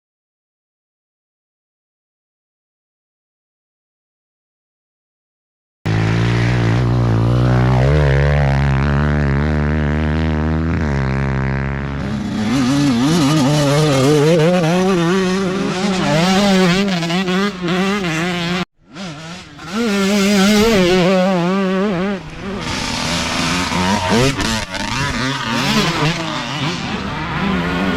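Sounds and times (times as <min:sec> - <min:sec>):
dirt bike engines revving: 0:05.9 - 0:27.9.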